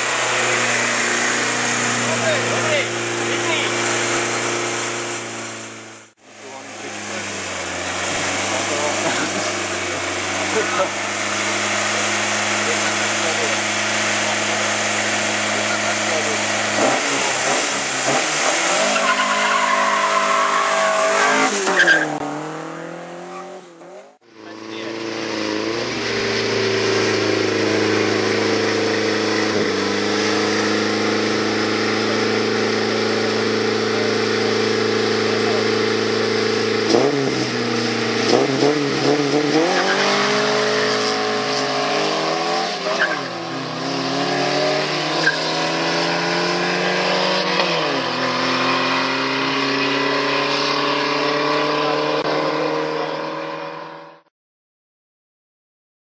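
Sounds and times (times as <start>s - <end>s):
car engine revving: 0.0s - 54.3s
tyre squeal: 18.7s - 22.2s, 42.7s - 43.7s, 45.1s - 45.6s.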